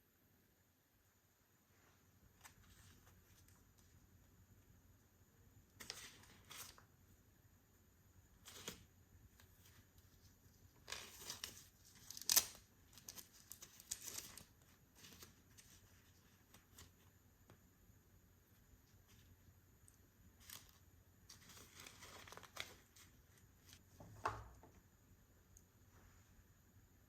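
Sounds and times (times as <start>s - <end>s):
packaging rustling and tearing: 10.8s - 17.0s, 20.4s - 23.8s.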